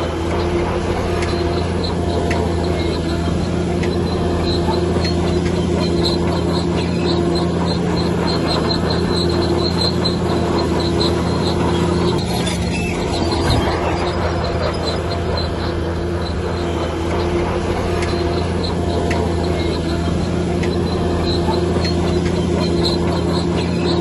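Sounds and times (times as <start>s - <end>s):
heavy diesel engine under load: 0.0s - 24.0s
faint high squeak: 1.2s - 17.3s.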